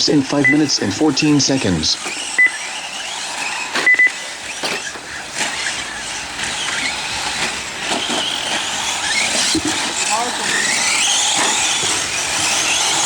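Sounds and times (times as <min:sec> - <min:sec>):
electric motor whine: 0:00.0 - 0:13.0
electronic beep: 0:00.4 - 0:00.8, 0:02.4 - 0:02.6, 0:03.8 - 0:04.2.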